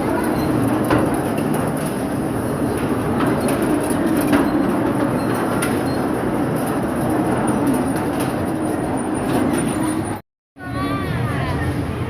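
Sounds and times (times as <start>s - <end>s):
moving vehicle rumble and rattle: 0.0s - 10.2s.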